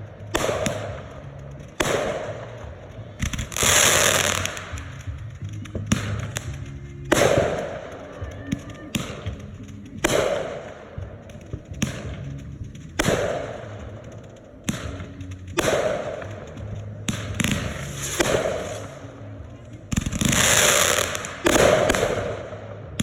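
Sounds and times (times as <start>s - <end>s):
fireworks bangs: 0.0s - 23.0s
rushing noise of bursting shells: 0.0s - 23.0s.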